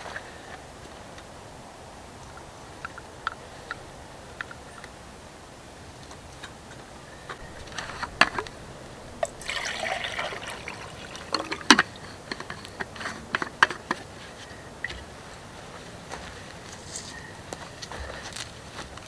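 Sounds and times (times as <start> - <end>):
liquid splashing: 7.4 - 12.4.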